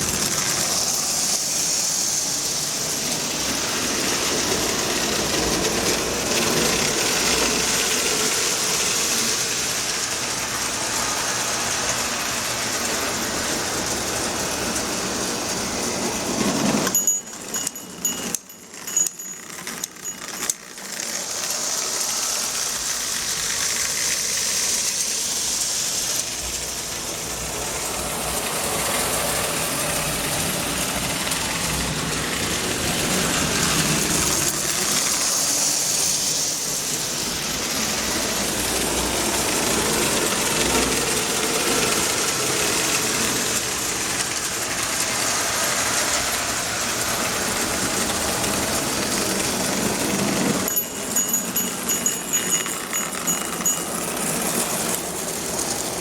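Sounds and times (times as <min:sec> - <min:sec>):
toy train motor whirring: 0:00.0 - 0:56.0
toy train wheels rattling: 0:00.0 - 0:56.0
steady high tones: 0:16.8 - 0:23.2, 0:50.6 - 0:56.0.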